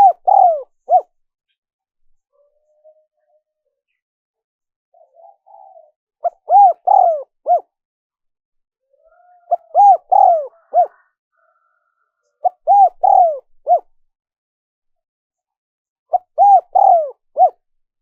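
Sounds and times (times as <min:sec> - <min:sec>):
dove cooing: 0:00.0 - 0:01.1, 0:04.9 - 0:07.7, 0:08.9 - 0:11.6, 0:12.4 - 0:13.9, 0:16.1 - 0:17.6.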